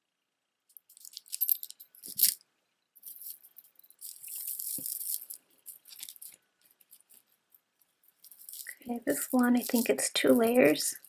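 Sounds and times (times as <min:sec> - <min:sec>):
beads clicking and rattling: 0:00.7 - 0:02.4, 0:03.0 - 0:11.0.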